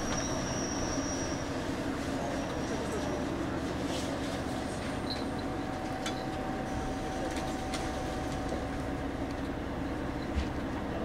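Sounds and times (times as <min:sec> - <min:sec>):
train rumbling and humming: 0:00.0 - 0:11.0.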